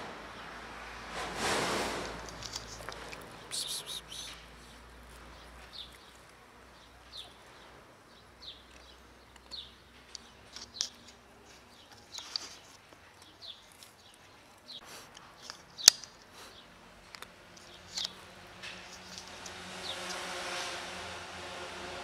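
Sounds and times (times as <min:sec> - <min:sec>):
low outdoor hush: 0:00.0 - 0:22.0
small bird chirping: 0:02.5 - 0:14.8.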